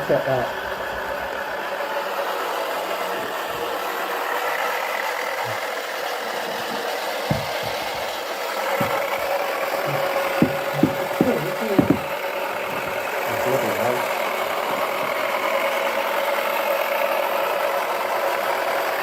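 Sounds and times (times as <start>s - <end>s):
light knocks: 6.4s - 15.3s.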